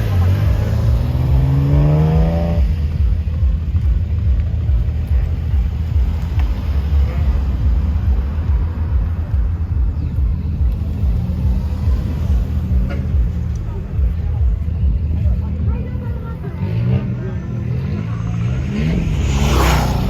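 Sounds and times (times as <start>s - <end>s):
engine revving: 0.0s - 9.0s, 16.2s - 20.0s
engine exhaust rumbling: 0.0s - 20.0s.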